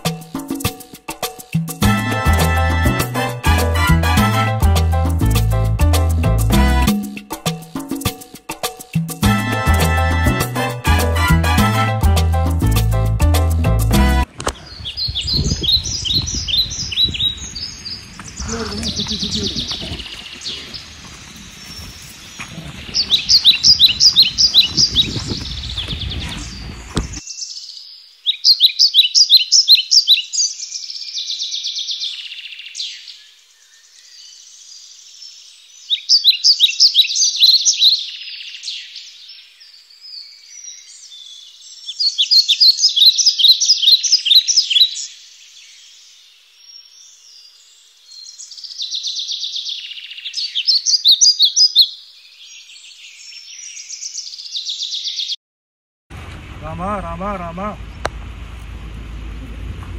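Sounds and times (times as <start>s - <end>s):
songbirds singing: 14.3s - 55.4s
soft bird chirping: 14.6s - 55.4s
low rumble: 56.1s - 59.9s.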